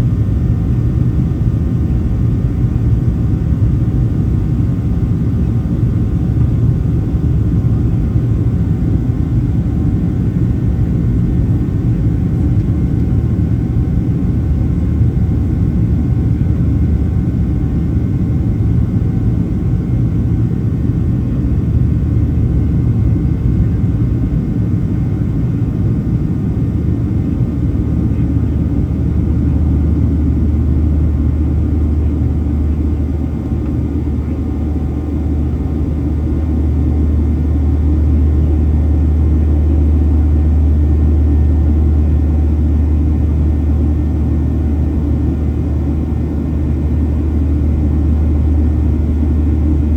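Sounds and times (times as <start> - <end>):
jet engines rumbling in cabin: 0.0 - 49.9.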